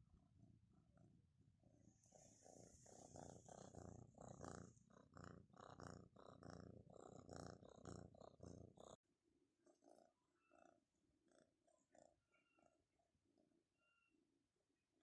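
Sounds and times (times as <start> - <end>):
cat purring: 0.0 - 9.0, 9.6 - 12.8.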